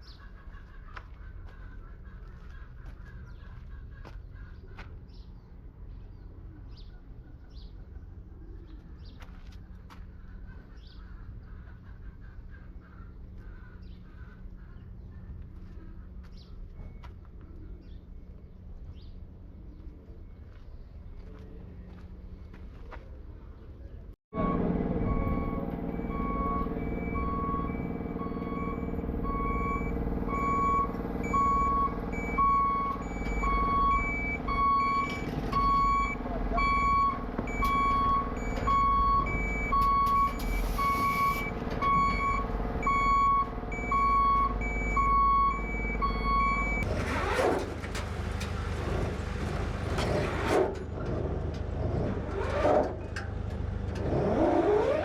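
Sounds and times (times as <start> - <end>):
reversing alarm beeping: 24.4 - 46.9
diesel engine idling: 24.4 - 51.8.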